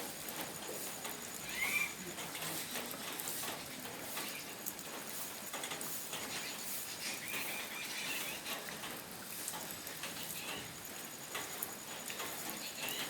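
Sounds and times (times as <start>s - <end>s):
water drips ticking: 0.0s - 6.5s, 7.2s - 13.0s
steady rain patter: 0.0s - 13.0s.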